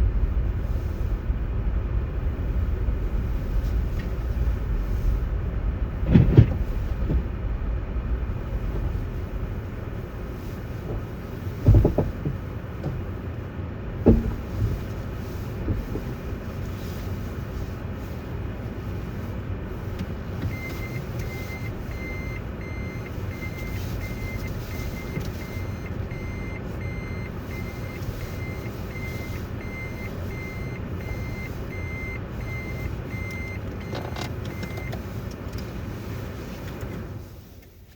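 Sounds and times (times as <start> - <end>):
vehicle rumble: 0.0 - 37.9
electronic warning beeps: 20.5 - 35.1.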